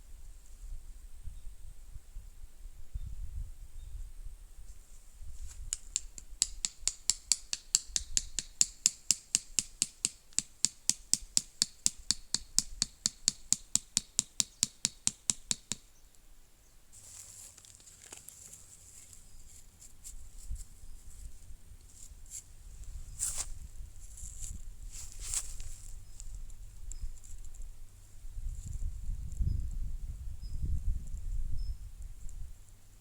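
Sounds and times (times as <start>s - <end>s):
soft rustling: 16.9s - 27.7s.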